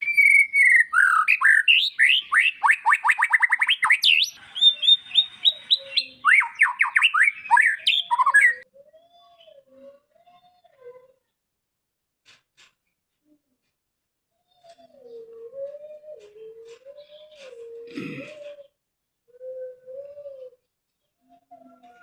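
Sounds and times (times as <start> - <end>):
songbird singing trills: 0.0 - 8.6.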